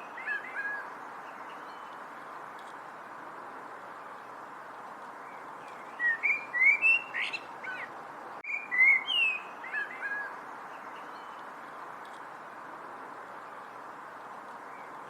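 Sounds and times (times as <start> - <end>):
steady background hiss: 0.0 - 15.0
songbird whistling: 5.9 - 10.3.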